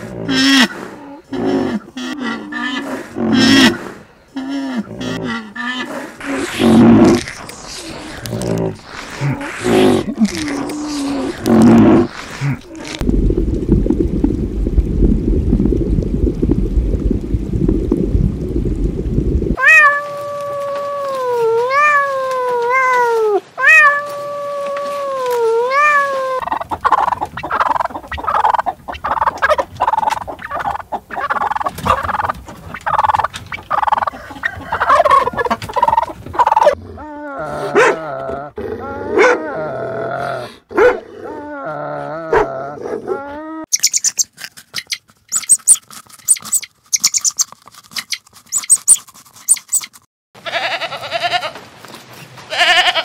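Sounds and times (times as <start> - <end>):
low steady rumble: 13.0 - 19.6
turkeys gobbling: 26.4 - 36.8
dogs whining and growling: 34.0 - 43.7.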